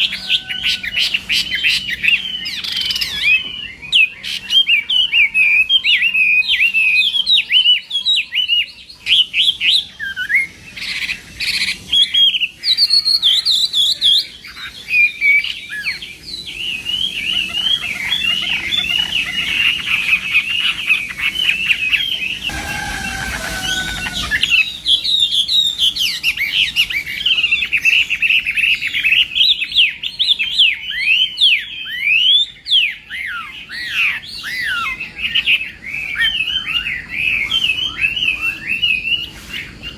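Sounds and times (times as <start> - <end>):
bird singing whistled notes: 0.0 - 39.9
brief rush of noise: 22.5 - 24.7.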